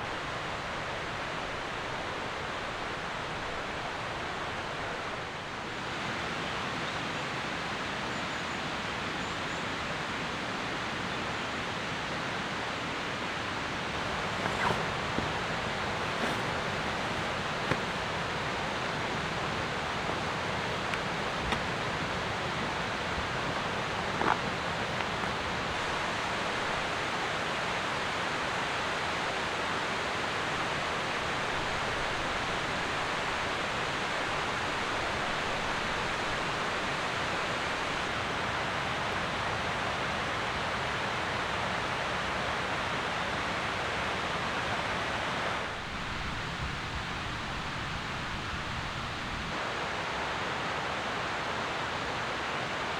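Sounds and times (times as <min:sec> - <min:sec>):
faint ticks: 0:14.0 - 0:26.0.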